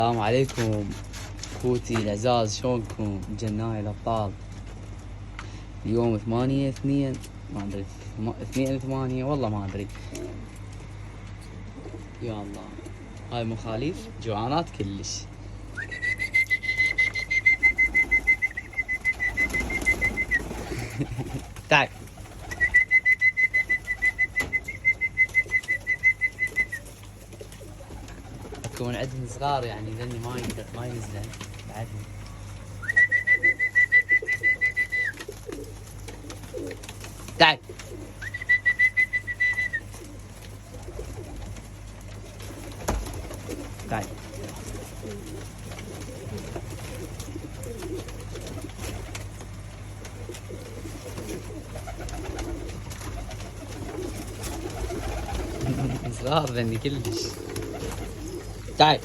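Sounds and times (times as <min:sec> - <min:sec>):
pigeons cooing: 0:09.9 - 0:14.2, 0:15.3 - 0:59.0
person whistling short high notes: 0:15.8 - 0:18.7.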